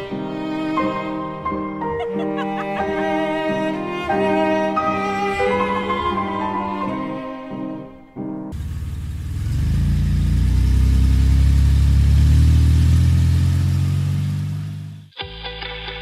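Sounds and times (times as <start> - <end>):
car engine accelerating: 8.5 - 15.1.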